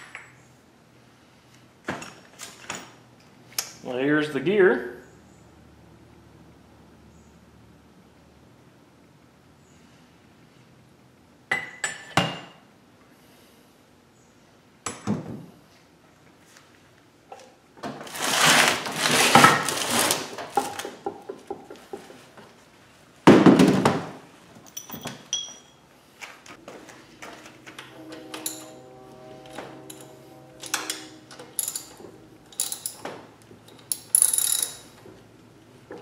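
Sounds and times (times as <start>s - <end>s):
light metal clinks: 24.7s - 25.8s
metal parts rattling: 31.6s - 33.1s, 33.7s - 35.0s
metal parts knocking and clanking: 31.6s - 35.0s.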